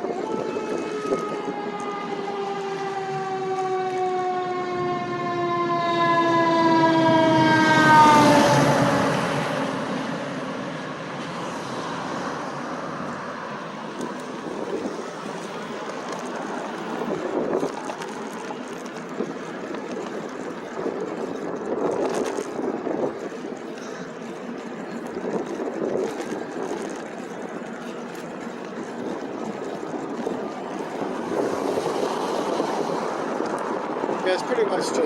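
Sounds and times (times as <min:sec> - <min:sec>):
passing vehicle whine: 0:00.0 - 0:35.0
wind and road noise: 0:00.0 - 0:35.0.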